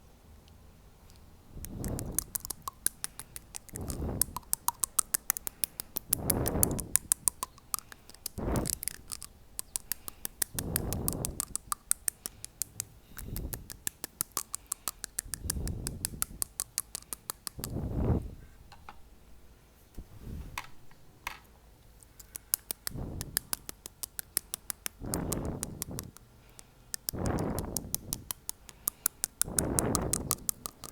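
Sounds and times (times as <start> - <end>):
teeth tapping clicks: 1.1 - 17.8, 22.0 - 30.9
soft wind-like whoosh: 17.6 - 18.5, 20.0 - 20.6.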